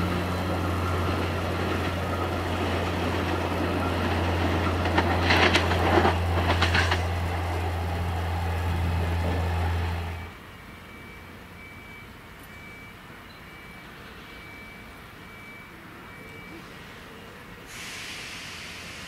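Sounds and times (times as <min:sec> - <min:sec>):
electric train humming: 0:00.0 - 0:11.6
train wheels clattering and squealing: 0:00.2 - 0:10.2.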